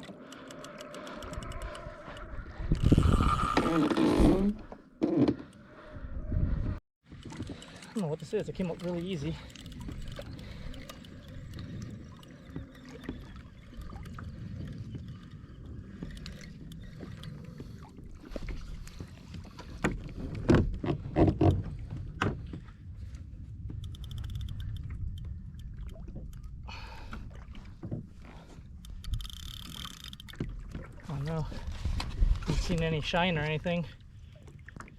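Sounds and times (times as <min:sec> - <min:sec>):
water sloshing against kayak hull: 0:07.0 - 0:34.9.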